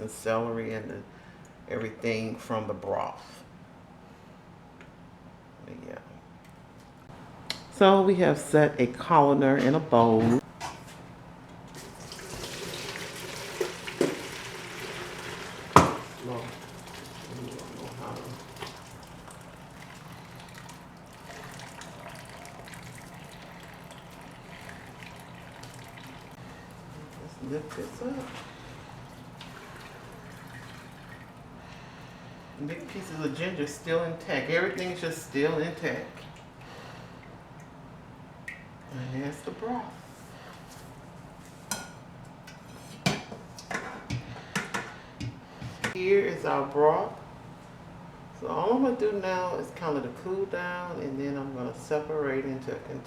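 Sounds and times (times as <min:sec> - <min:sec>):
liquid pouring and splashing: 0:11.7 - 0:26.4, 0:27.8 - 0:31.5
cookware clinking and knocking: 0:15.8 - 0:16.0.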